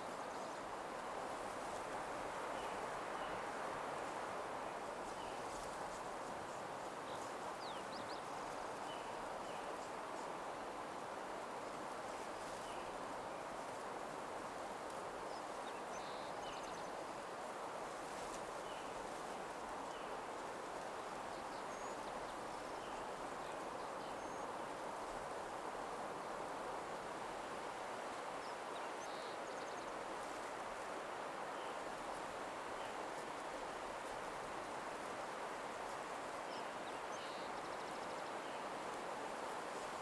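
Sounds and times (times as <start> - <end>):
soft rushing nature ambience: 0.0 - 40.0.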